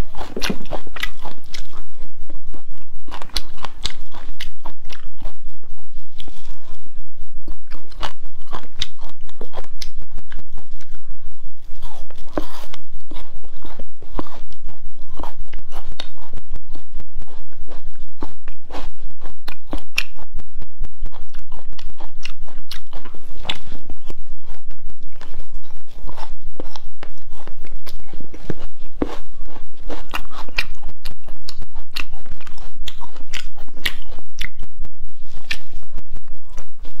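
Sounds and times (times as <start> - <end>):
chewing and crunching: 0.0 - 37.0
mouth clicks: 18.4 - 28.1, 30.0 - 36.8.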